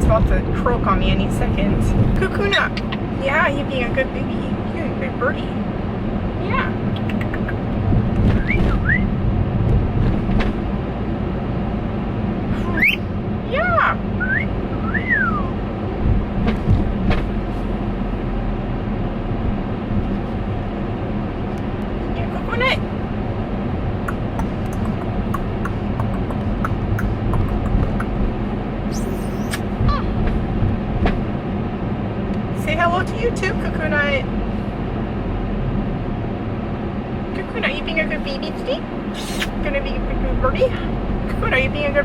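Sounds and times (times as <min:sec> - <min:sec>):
car cabin road rumble: 0:00.0 - 0:42.0
cockatiel whistled chirps: 0:08.4 - 0:09.1, 0:12.8 - 0:13.1, 0:14.2 - 0:15.5, 0:28.9 - 0:29.6, 0:39.2 - 0:39.5
cockatiel chirp: 0:12.8 - 0:13.1, 0:28.9 - 0:29.6.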